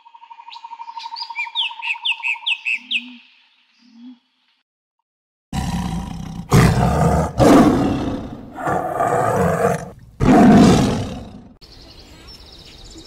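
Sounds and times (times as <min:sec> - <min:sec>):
tiger roaring: 0:05.6 - 0:11.6.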